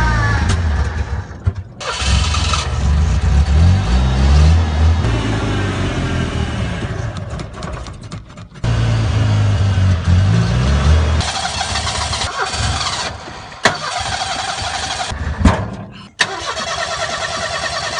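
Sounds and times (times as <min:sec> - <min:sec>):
engine running with low rumble: 0:00.0 - 0:16.0
starter motor cranking: 0:01.8 - 0:02.9, 0:11.2 - 0:15.1, 0:16.2 - 0:17.9.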